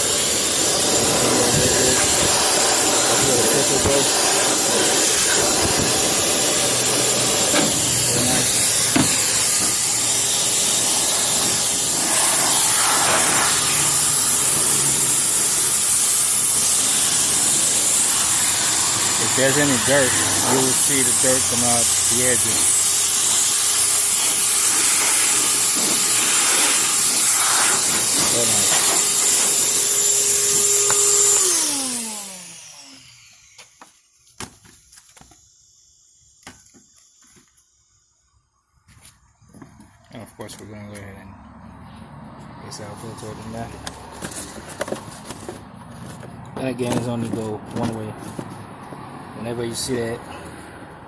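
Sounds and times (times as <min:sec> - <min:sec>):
shop vac blowing air: 0:00.0 - 0:34.1, 0:42.1 - 0:51.0.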